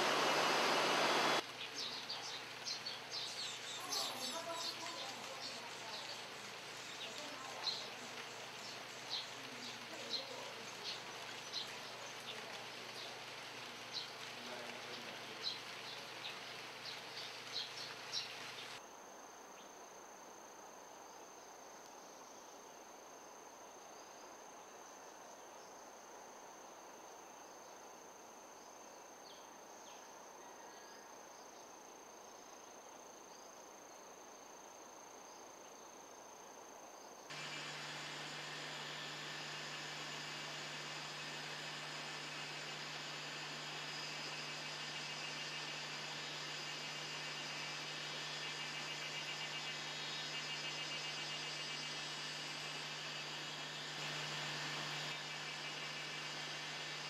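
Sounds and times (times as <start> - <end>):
birds chirping: 0.0 - 18.8
insect droning: 0.0 - 57.0
outdoor background hiss: 0.0 - 57.0.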